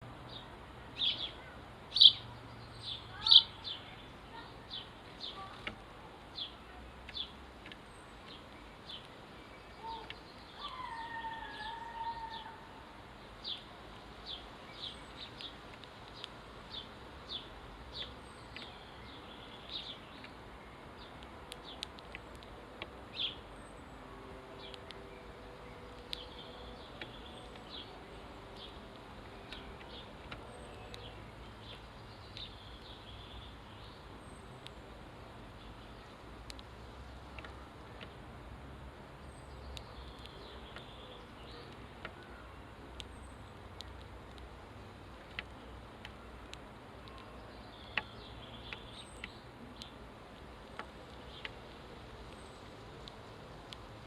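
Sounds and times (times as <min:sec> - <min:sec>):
faint low hum: 0:00.0 - 0:54.0
sparrows chirping: 0:00.1 - 0:38.4, 0:39.2 - 0:54.0
sharp clicks: 0:05.2 - 0:09.2, 0:15.2 - 0:16.9, 0:21.0 - 0:23.7, 0:24.6 - 0:33.0, 0:36.3 - 0:38.2, 0:39.7 - 0:41.0, 0:42.9 - 0:51.6
sharp ticks: 0:21.0 - 0:23.4, 0:36.4 - 0:38.2.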